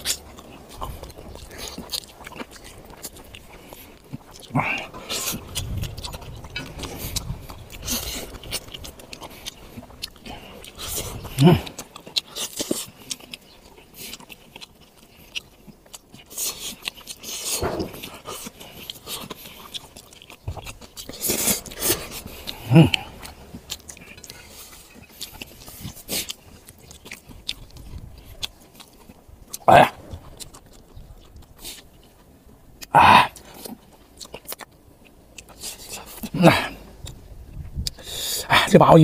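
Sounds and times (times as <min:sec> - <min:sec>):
man chewing and lip-smacking: 0:00.0 - 0:39.0
short vocal sounds: 0:11.0 - 0:11.8, 0:21.4 - 0:23.5, 0:29.6 - 0:30.1, 0:32.9 - 0:33.4.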